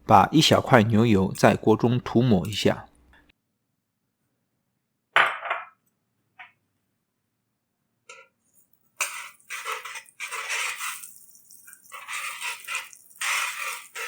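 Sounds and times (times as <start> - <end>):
meat sizzling and crackling: 9.0 - 14.0.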